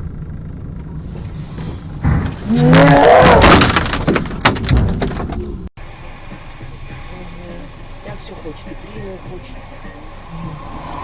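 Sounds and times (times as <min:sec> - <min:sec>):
road noise: 0:00.0 - 0:11.0
car crash crunching impacts: 0:01.7 - 0:05.7.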